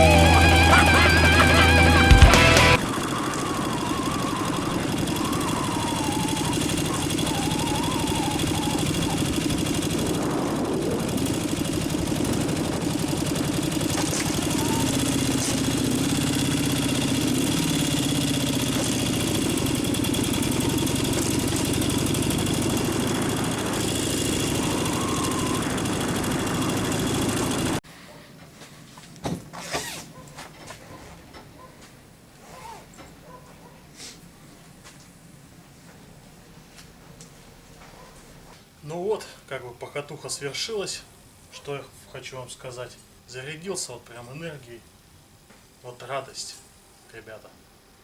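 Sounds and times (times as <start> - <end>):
motorcycle engine running: 0.0 - 27.8.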